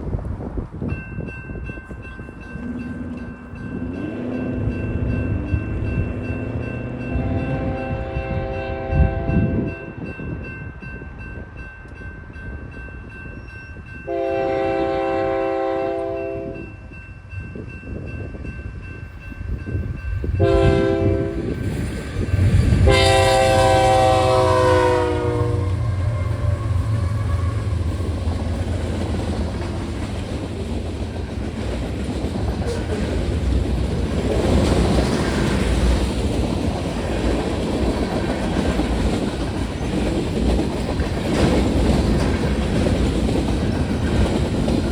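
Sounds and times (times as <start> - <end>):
locomotive horn blasts: 7.1 - 9.8, 14.1 - 16.6, 20.4 - 21.5, 22.8 - 27.9
train wheels clicking on rails: 17.5 - 44.9.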